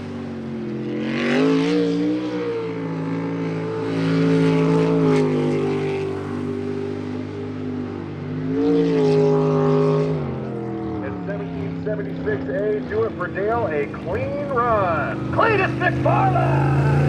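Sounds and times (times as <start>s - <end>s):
jet boat engine revving: 9.3s - 17.0s.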